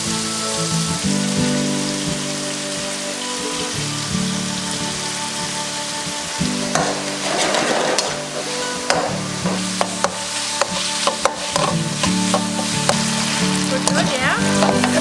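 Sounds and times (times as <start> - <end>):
background music: 0.0 - 15.0
food sizzling in a pan: 0.0 - 15.0
stirring and scraping: 6.6 - 15.0.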